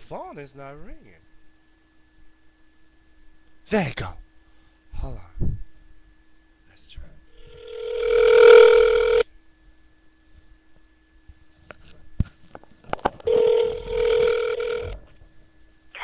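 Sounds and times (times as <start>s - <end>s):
telephone ringback tone: 7.4s - 9.2s, 13.3s - 15.0s.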